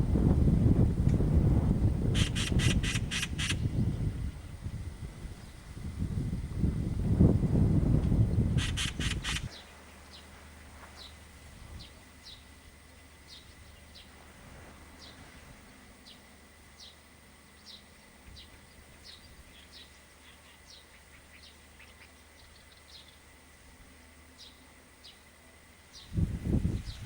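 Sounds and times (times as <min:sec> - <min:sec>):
faint high bird calls: 0:14.9 - 0:23.3.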